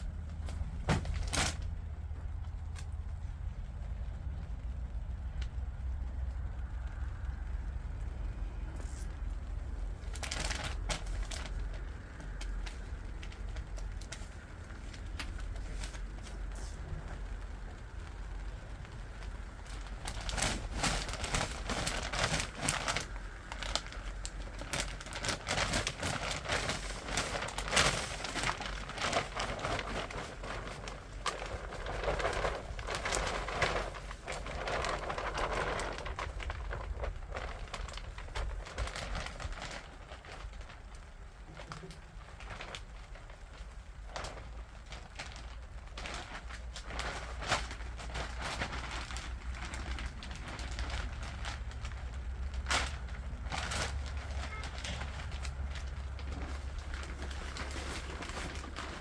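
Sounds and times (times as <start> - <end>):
rustling crackling handling noise: 0.0 - 59.0
steady low rumble: 0.0 - 59.0.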